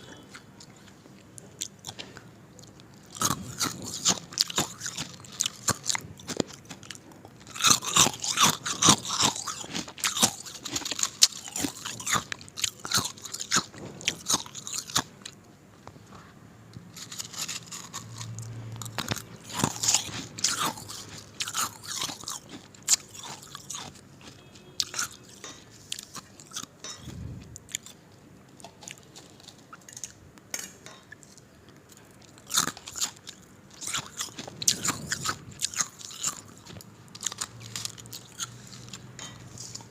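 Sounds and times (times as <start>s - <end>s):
ice being chewed: 0.0s - 15.4s, 16.9s - 39.9s.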